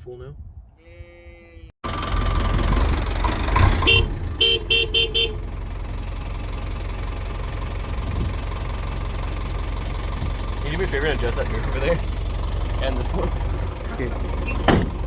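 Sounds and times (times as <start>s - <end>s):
diesel engine idling: 1.8s - 15.0s
truck horn beeping: 3.7s - 6.4s, 14.4s - 14.8s.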